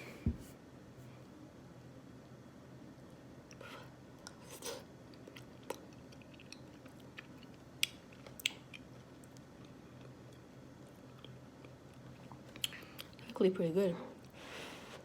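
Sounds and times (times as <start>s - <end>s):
soft chewing and mouth sounds: 3.0s - 13.5s, 14.1s - 15.0s.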